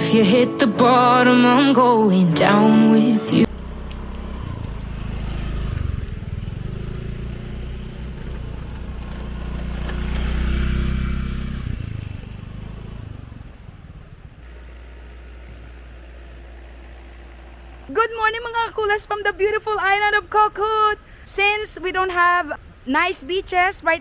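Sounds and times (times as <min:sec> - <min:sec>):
engine humming with hiss: 0:03.4 - 0:22.8.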